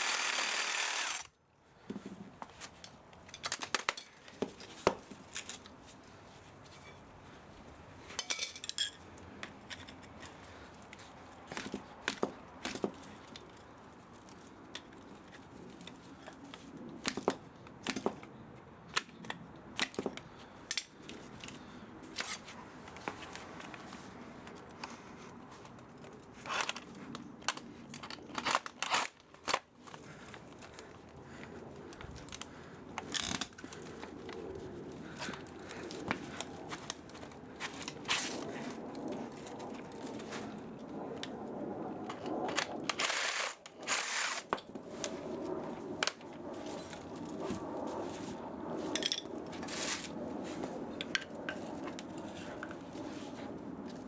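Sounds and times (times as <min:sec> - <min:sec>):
hand tools clicking and snipping: 0:00.0 - 0:01.3, 0:27.5 - 0:29.7, 0:42.5 - 0:44.6.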